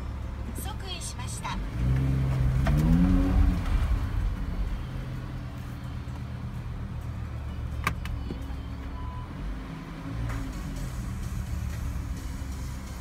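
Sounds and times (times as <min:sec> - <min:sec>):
car engine revs falling to idle: 0:01.5 - 0:04.9, 0:09.3 - 0:13.0.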